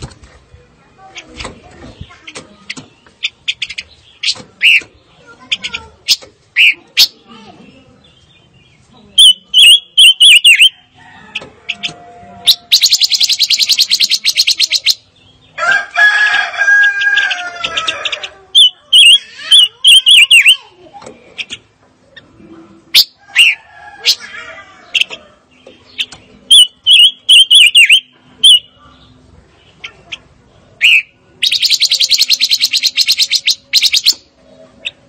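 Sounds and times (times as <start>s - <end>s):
bird singing whistled notes: 9.2s - 10.7s, 12.5s - 15.0s, 26.5s - 28.8s, 30.8s - 34.2s.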